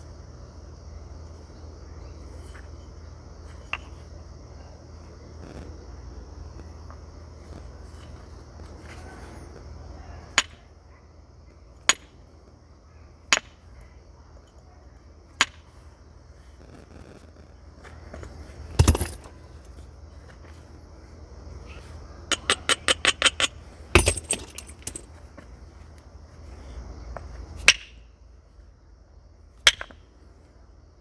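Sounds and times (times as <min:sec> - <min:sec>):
heavy stone knock: 0:18.8 - 0:19.3.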